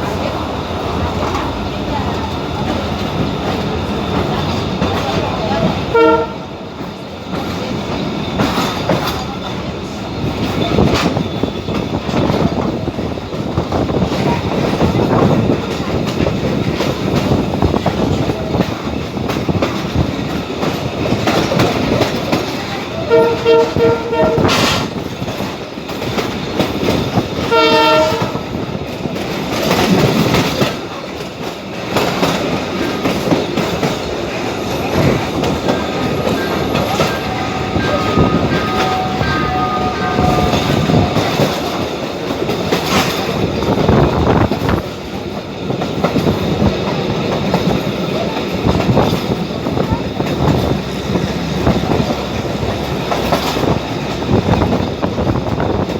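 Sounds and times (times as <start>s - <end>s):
train rumbling on track: 0.0s - 55.9s
train wheel clatter: 0.0s - 55.9s
train horn short toots: 5.8s - 6.6s, 23.0s - 24.9s, 27.4s - 28.6s, 36.2s - 41.9s.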